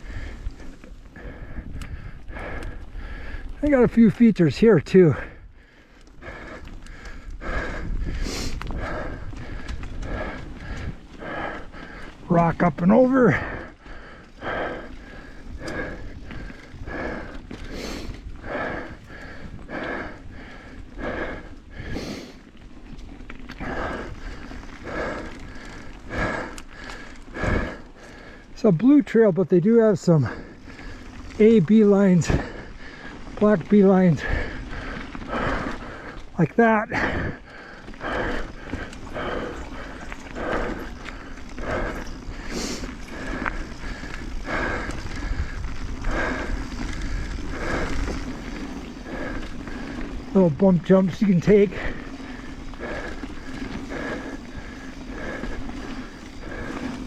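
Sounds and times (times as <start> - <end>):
person breathing hard: 0.0 - 3.6, 5.1 - 12.3, 13.2 - 28.7, 30.1 - 31.4, 32.0 - 57.0
wind rumble on microphone: 0.0 - 3.7, 5.3 - 12.7, 34.2 - 50.6
bike tyre and frame noise: 0.0 - 57.0
low steady riding rumble: 0.0 - 57.0.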